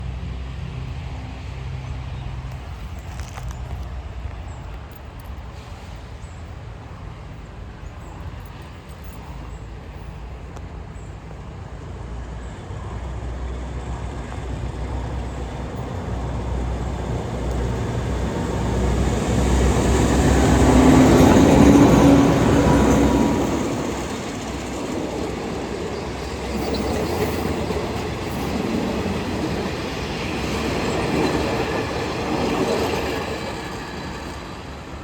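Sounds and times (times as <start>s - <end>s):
freight train rumbling: 0.0s - 35.0s
train engine tone: 11.5s - 35.0s.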